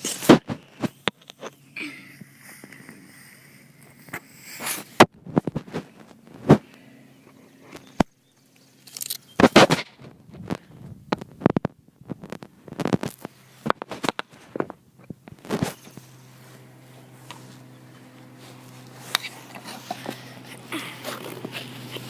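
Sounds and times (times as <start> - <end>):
rustling: 8.8 - 22.0.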